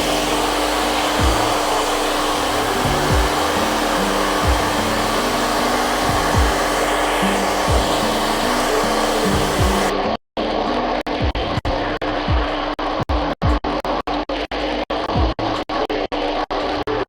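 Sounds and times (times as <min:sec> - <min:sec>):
hair dryer running: 0:00.0 - 0:09.9.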